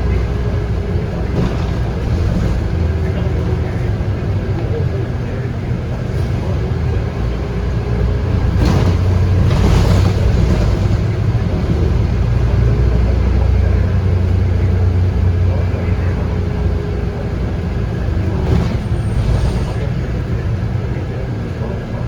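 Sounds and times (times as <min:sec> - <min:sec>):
bus diesel engine droning: 0:00.0 - 0:22.0.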